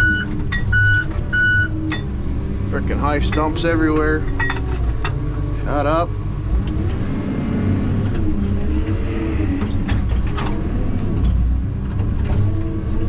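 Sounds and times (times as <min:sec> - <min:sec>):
diesel engine and hydraulics: 0:00.0 - 0:13.0
sharp knocks and creaks: 0:03.0 - 0:05.4, 0:08.0 - 0:13.0.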